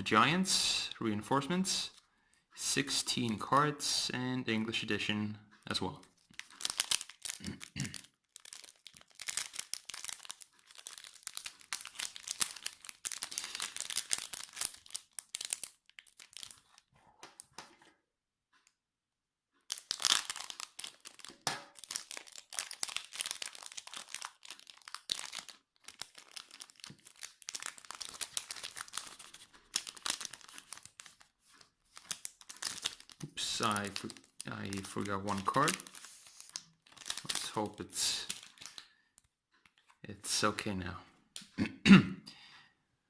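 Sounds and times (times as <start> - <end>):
foil wrapper crinkling and tearing: 6.2 - 16.9, 19.7 - 38.9.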